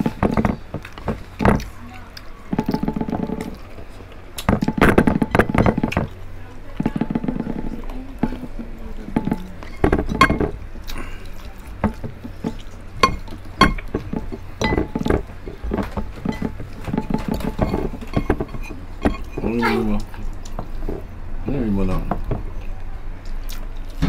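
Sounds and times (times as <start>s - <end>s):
chewing: 0.0s - 21.2s, 21.9s - 24.0s
lip smacks: 22.6s - 24.0s.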